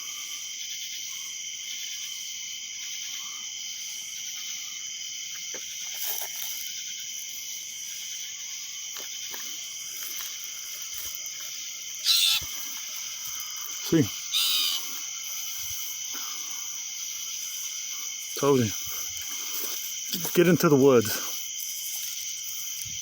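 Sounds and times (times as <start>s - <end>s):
crickets and insects chirping: 0.0s - 23.0s.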